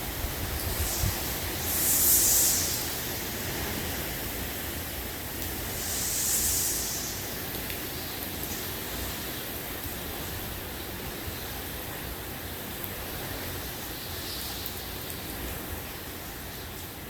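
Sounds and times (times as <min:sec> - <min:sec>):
wind buffeting microphone: 0:00.0 - 0:08.0
wind and rain rushing: 0:00.0 - 0:17.0.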